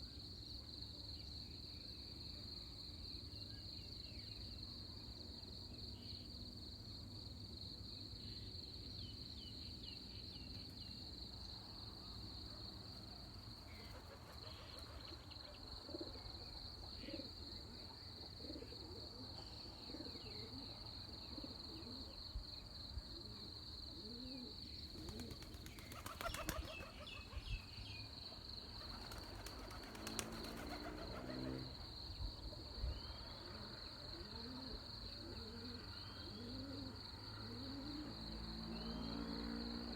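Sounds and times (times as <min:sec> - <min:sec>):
high insect drone: 0:05.0 - 0:39.9
dove-like cooing calls: 0:13.7 - 0:22.2, 0:23.2 - 0:27.7, 0:28.8 - 0:31.8, 0:33.4 - 0:38.2.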